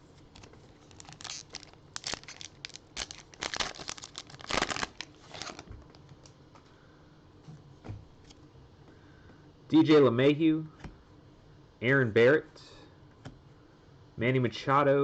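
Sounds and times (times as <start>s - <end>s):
wrapper tearing and crinkling: 0.3s - 6.0s.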